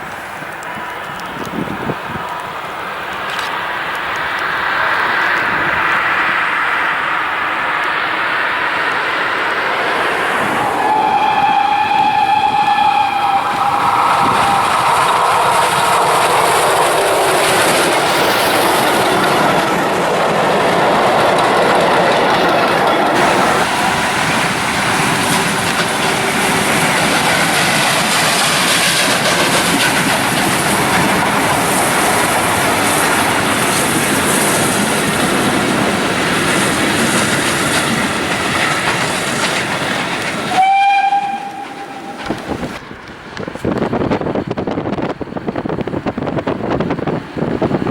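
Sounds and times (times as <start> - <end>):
train wheels clattering on rails: 0.0 - 47.9
steam locomotive whistle: 10.2 - 19.8, 40.2 - 42.8.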